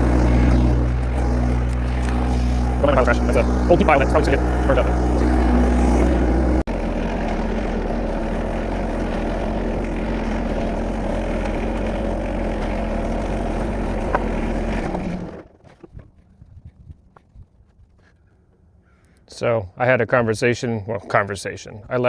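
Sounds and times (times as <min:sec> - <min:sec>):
diesel tractor engine running: 0:00.0 - 0:15.5.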